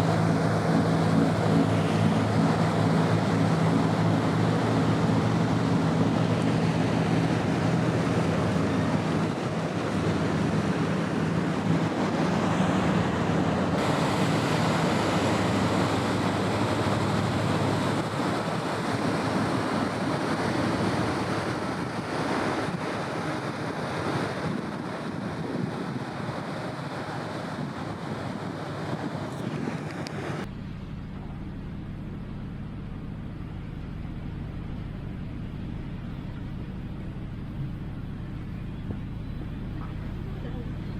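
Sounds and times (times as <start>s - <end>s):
rushing water: 0.0s - 40.9s
ship engine hum: 0.0s - 40.9s
wind on microphone: 0.0s - 40.9s.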